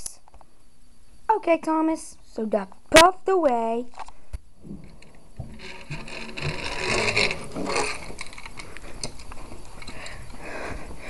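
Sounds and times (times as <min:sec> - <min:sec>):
toy train rattling on track: 0:05.4 - 0:10.2.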